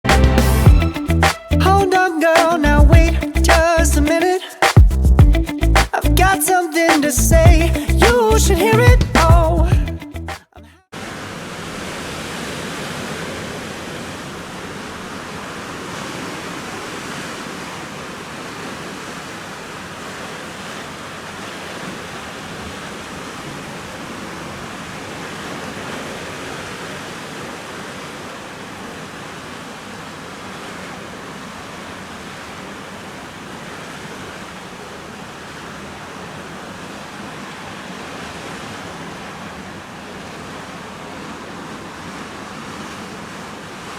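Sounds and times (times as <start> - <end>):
ocean surf on a sandy beach: 1.9 - 2.7, 10.9 - 43.9.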